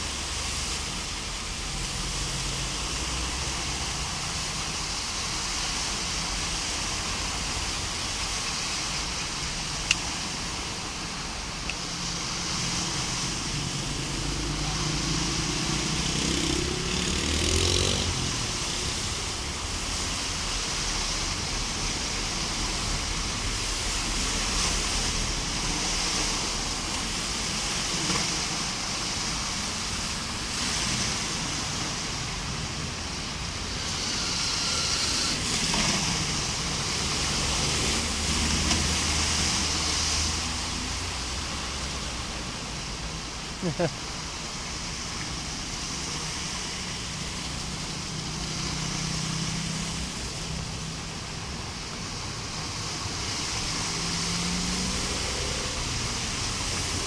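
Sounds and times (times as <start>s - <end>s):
cars driving through water: 0.0s - 57.0s
floodwater rushing: 0.0s - 57.0s
heavy rain: 0.0s - 57.0s.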